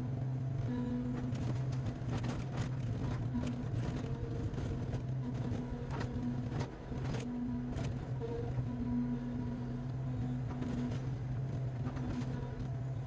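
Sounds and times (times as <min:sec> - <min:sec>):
diesel engine running under load: 0:00.0 - 0:13.0.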